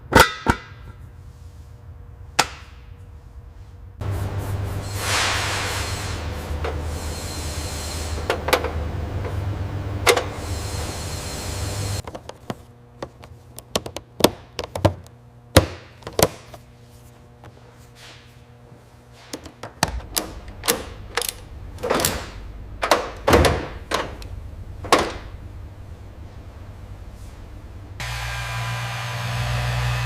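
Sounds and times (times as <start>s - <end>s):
low steady hum: 6.0s - 28.0s
parts and tools clicking and knocking: 12.0s - 16.6s, 19.3s - 24.3s.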